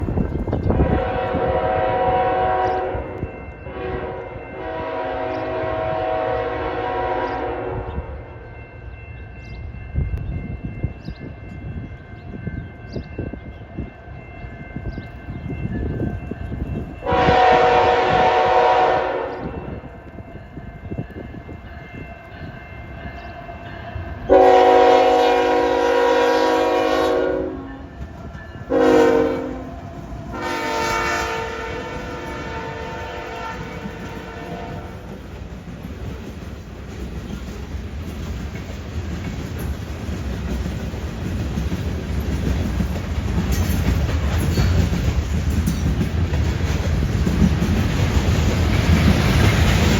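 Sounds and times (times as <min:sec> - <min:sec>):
diesel train rumble: 0:00.0 - 0:13.3, 0:14.4 - 0:49.9
locomotive air horn blasts: 0:00.8 - 0:08.2, 0:17.0 - 0:19.9, 0:24.3 - 0:27.8, 0:28.7 - 0:35.0.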